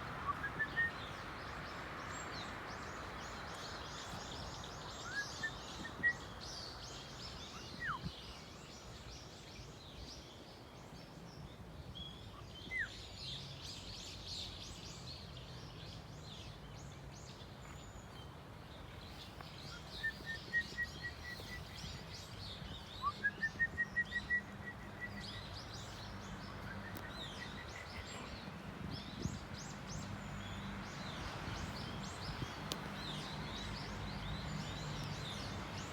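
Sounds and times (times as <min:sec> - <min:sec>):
birds chirping: 0:12.4 - 0:35.9.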